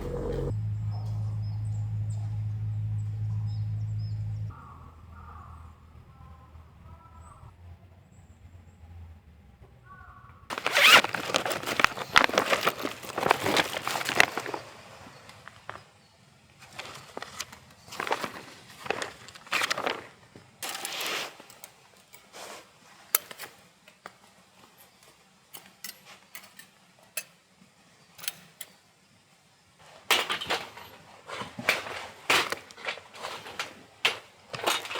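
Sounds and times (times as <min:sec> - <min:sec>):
rustling and scraping handling: 0:10.5 - 0:23.6, 0:29.9 - 0:34.9.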